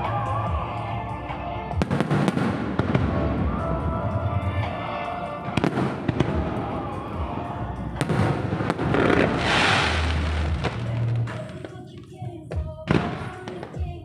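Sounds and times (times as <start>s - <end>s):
music: 0.0s - 14.0s
fireworks bursting with bangs: 1.8s - 3.8s, 5.4s - 14.0s
crackling hiss of comets: 8.8s - 11.8s.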